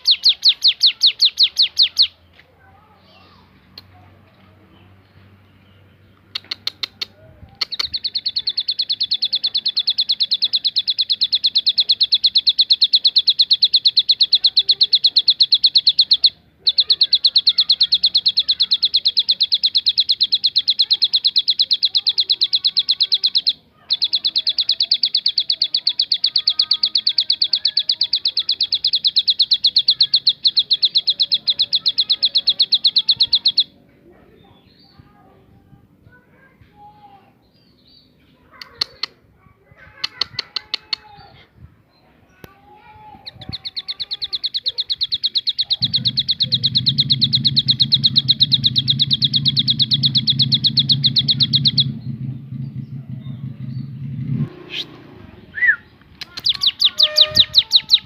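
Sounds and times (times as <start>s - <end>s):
bird song with fast rattle: 0.0s - 2.1s, 7.7s - 33.7s, 43.3s - 54.4s, 56.2s - 58.0s
bird sharp chips: 0.0s - 2.2s, 42.3s - 52.0s, 55.6s - 58.0s.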